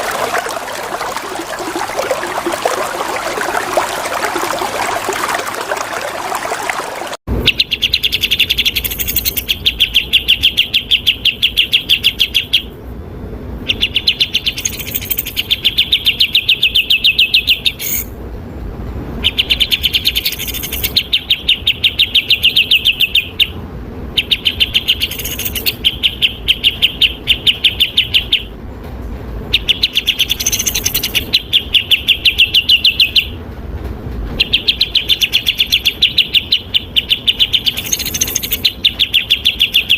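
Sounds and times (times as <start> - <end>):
flowing water: 0.0 - 7.2
bulbul singing: 24.2 - 28.5, 34.4 - 39.9.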